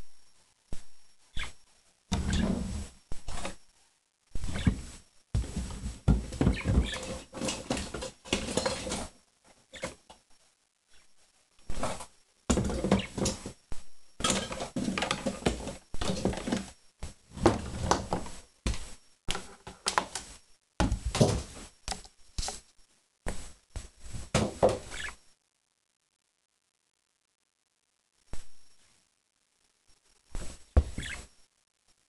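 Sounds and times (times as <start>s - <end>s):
birds moving in cage: 4.4s - 10.0s, 11.7s - 13.6s, 14.2s - 16.8s, 31.0s - 31.3s.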